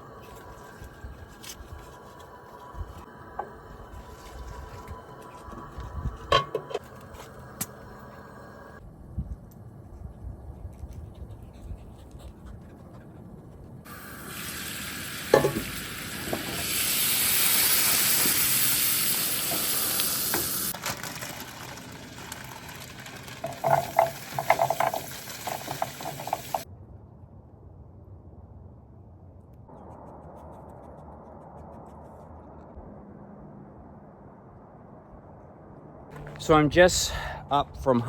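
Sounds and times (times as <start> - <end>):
food sizzling in a skillet: 13.9 - 26.6
utensil scraping a pan: 23.2 - 26.6.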